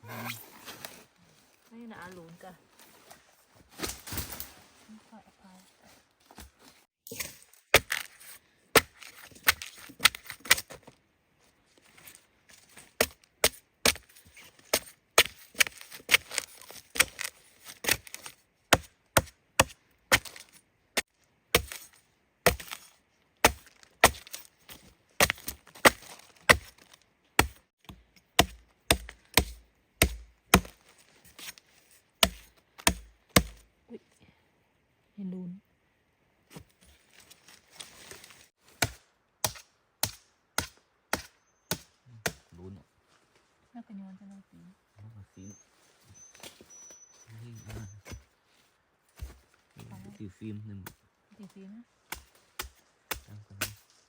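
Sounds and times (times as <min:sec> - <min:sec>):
blade chopping into wood: 0:07.1 - 0:08.1, 0:08.8 - 0:10.7, 0:13.0 - 0:14.1, 0:14.7 - 0:20.5, 0:21.6 - 0:21.9, 0:22.5 - 0:24.5, 0:25.2 - 0:30.8, 0:32.2 - 0:33.6, 0:38.7 - 0:42.5, 0:52.1 - 0:53.8.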